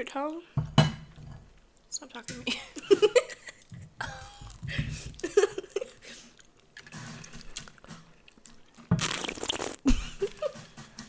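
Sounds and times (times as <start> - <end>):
quiet chewing: 5.9 - 9.8
loud wet mouth sound: 9.0 - 9.9.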